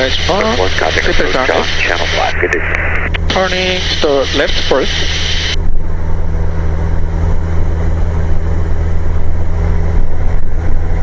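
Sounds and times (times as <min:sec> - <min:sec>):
radio hiss: 0:00.0 - 0:05.6
aircraft engine droning: 0:00.0 - 0:11.0.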